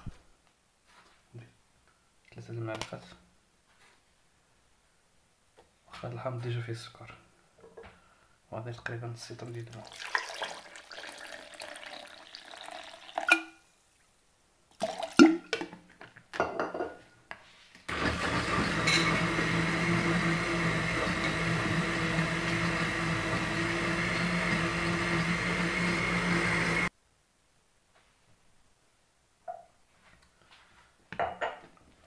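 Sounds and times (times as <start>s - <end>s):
water pouring into jug: 9.4s - 13.5s, 14.7s - 15.6s
electric blender running: 17.9s - 26.9s.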